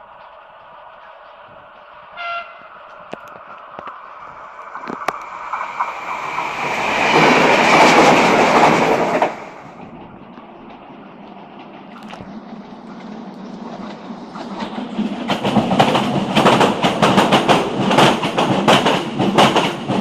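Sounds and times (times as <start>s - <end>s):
train passing rushing and clattering: 0.0s - 20.0s
train horn blast: 2.1s - 2.7s.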